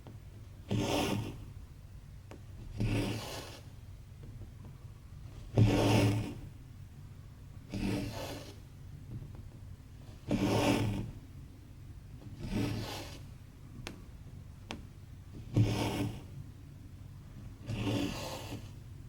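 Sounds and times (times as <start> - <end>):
thread rasping through fabric: 0.1 - 1.5, 2.3 - 4.4, 5.3 - 6.5, 7.7 - 8.7, 10.2 - 11.2, 12.2 - 14.1, 14.7 - 16.4, 17.5 - 18.9.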